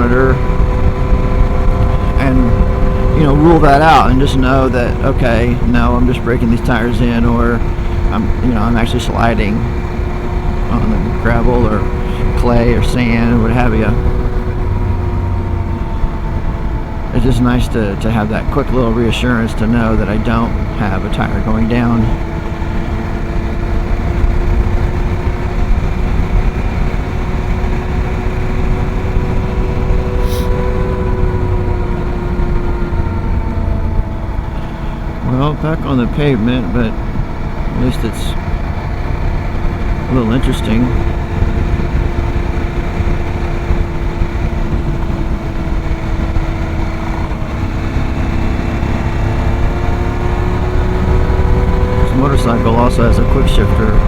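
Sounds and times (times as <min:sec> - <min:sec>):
heavy wind: 0:00.0 - 0:54.0
motorcycle engine running: 0:00.0 - 0:54.0
road rumble: 0:00.0 - 0:54.0.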